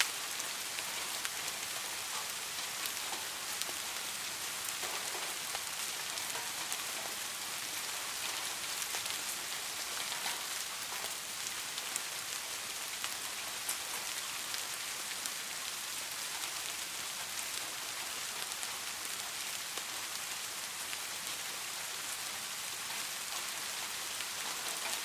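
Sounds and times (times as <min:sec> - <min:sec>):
raindrop ticks: 0:00.0 - 0:15.4, 0:22.8 - 0:25.0
steady rain hiss: 0:00.0 - 0:25.0.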